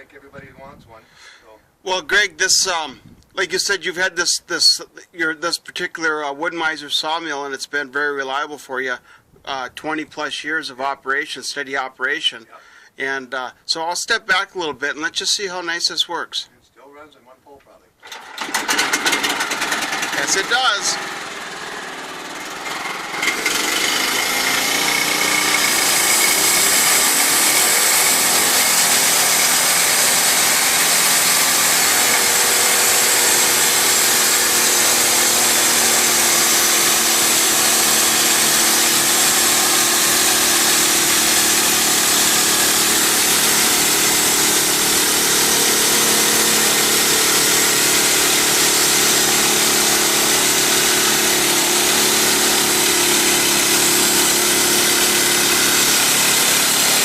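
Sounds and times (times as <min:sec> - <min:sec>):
sawmill engine running: 0:18.0 - 0:57.0
band blade sawing log: 0:18.5 - 0:57.0.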